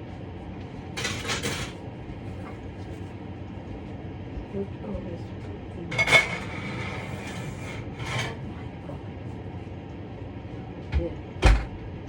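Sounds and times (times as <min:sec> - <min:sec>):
dishes clattering: 0:01.0 - 0:01.8, 0:05.9 - 0:08.4.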